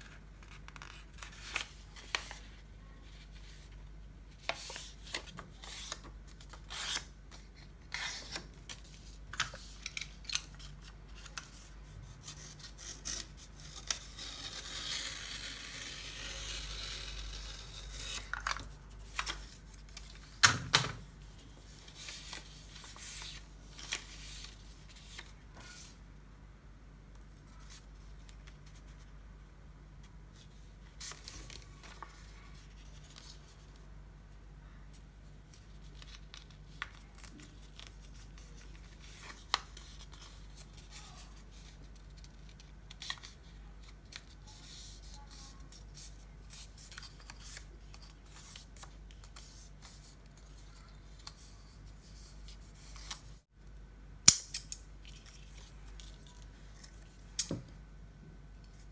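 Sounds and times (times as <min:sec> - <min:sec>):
paper crinkling and rustling: 0:30.4 - 0:33.8, 0:35.4 - 0:53.5, 0:54.9 - 0:57.4.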